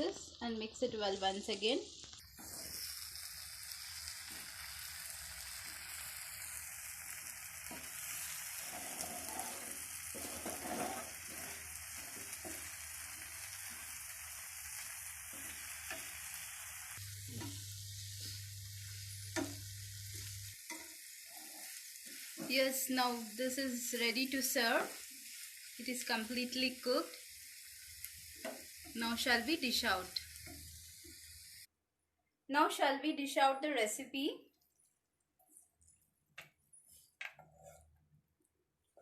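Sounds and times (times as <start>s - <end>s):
chicken sizzling in a pan: 0.0s - 31.7s
spoon scraping a pan: 7.6s - 14.1s, 14.7s - 16.7s, 17.3s - 22.8s, 28.0s - 29.0s, 36.6s - 38.0s.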